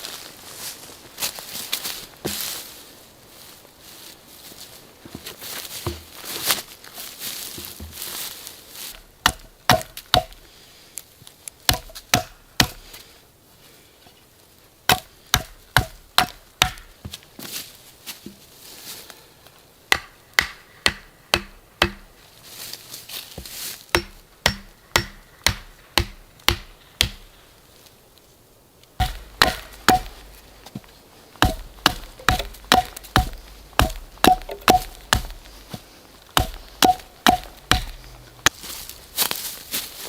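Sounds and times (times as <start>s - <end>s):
chopping into wood: 5.8s - 6.2s, 9.2s - 10.4s, 11.7s - 12.8s, 14.9s - 17.0s, 19.9s - 22.1s, 23.4s - 27.3s, 29.0s - 30.8s, 31.4s - 38.7s.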